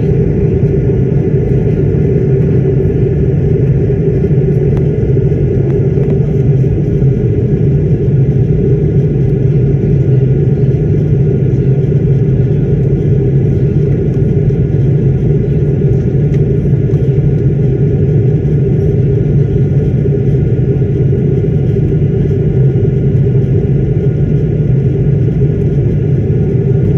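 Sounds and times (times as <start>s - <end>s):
airliner cabin engine drone: 0.0s - 26.9s.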